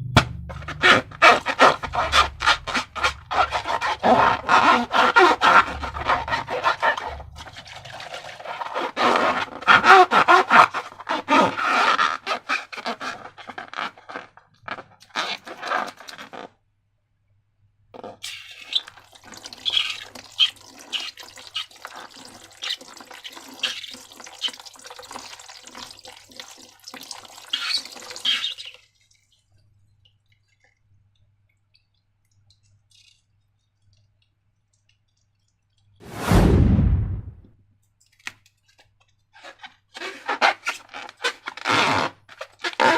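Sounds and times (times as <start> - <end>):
loud deep thump: 36.1 - 37.4.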